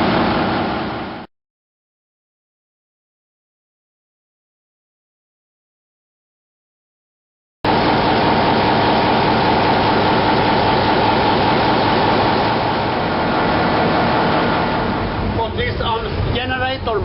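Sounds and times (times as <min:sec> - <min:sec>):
marine diesel engine running: 0:00.0 - 0:01.2, 0:07.7 - 0:17.0
steady high whine: 0:07.7 - 0:17.0.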